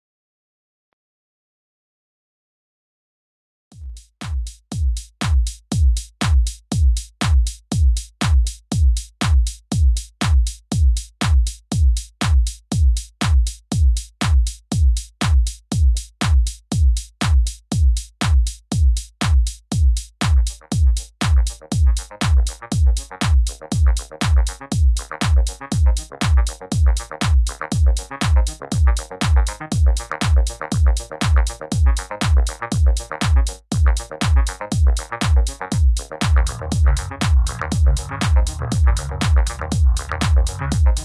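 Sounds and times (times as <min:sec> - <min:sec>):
electronic music kick drum: 0:03.8 - 0:41.0
synth chords: 0:27.8 - 0:41.0.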